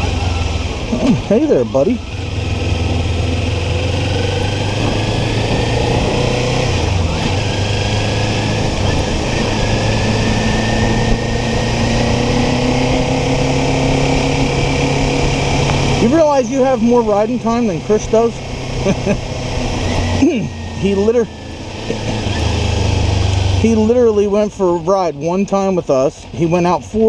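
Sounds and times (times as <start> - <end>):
motorcycle engine running: 0.0 - 27.0
wind and road noise: 0.0 - 27.0.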